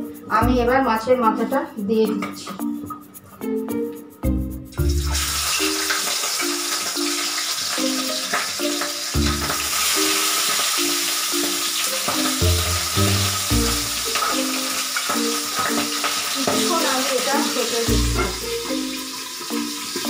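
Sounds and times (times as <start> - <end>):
background music: 0.0 - 20.0
fish sizzling in oil: 4.8 - 20.0.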